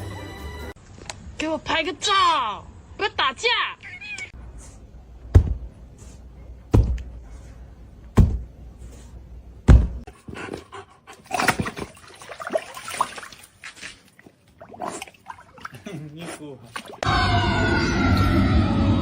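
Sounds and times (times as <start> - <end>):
dull heavy thumps: 5.2 - 5.7, 6.7 - 7.2, 8.1 - 8.6, 9.6 - 10.1.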